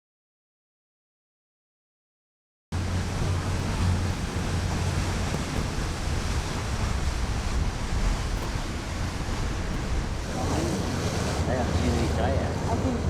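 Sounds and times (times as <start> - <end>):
boat engine drone: 2.8 - 13.0
water rushing along hull: 2.8 - 13.0
wind on microphone: 2.8 - 13.0.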